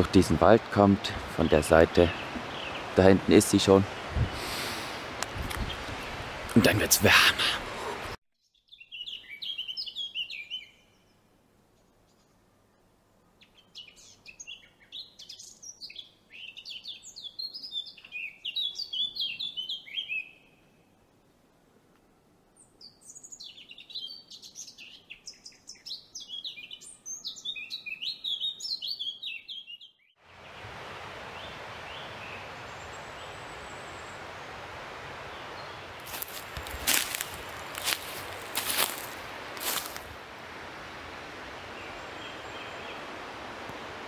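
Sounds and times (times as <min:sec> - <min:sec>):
steady rushing hiss: 0:00.0 - 0:08.2, 0:30.3 - 0:44.0
songbird chirping and twittering: 0:01.4 - 0:06.8, 0:08.4 - 0:12.5, 0:13.3 - 0:21.0, 0:22.5 - 0:34.4, 0:35.2 - 0:40.0, 0:41.6 - 0:43.6.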